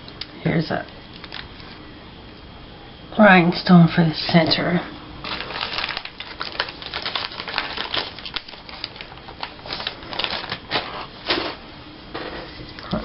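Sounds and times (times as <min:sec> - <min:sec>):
paper tags clicking and rustling: 0:05.3 - 0:11.4.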